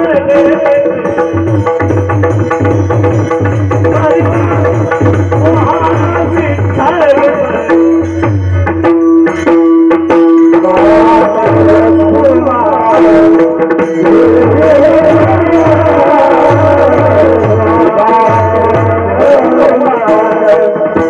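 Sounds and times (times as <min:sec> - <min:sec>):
devotional singing: 0:10.6 - 0:21.0.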